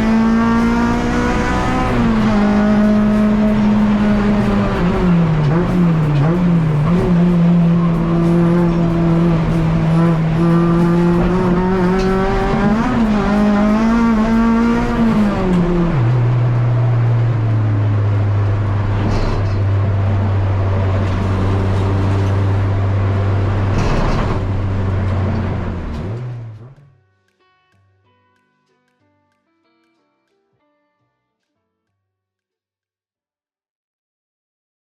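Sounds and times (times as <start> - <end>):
car engine running at high speed: 0.0 - 26.8.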